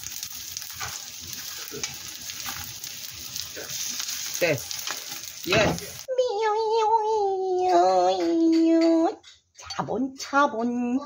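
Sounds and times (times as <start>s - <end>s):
food sizzling in hot oil: 0.0s - 6.1s.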